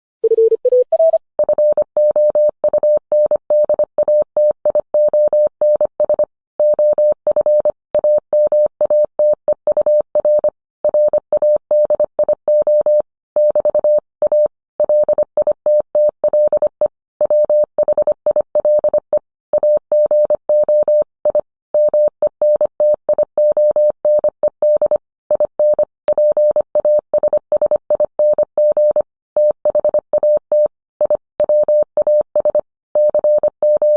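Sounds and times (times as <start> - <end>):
morse code tone: 0.2 - 2.3.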